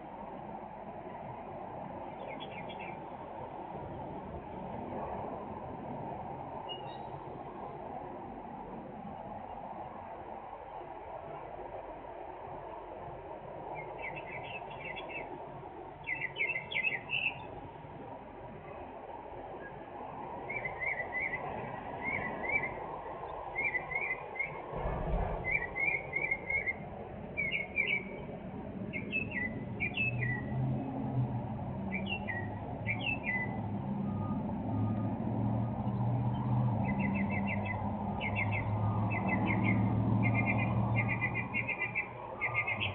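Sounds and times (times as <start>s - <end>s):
small birds chirping: 13.8s - 15.3s, 16.0s - 17.6s, 27.4s - 28.3s, 28.9s - 30.6s, 31.9s - 33.6s, 35.9s - 42.9s
low thud: 24.7s - 26.0s.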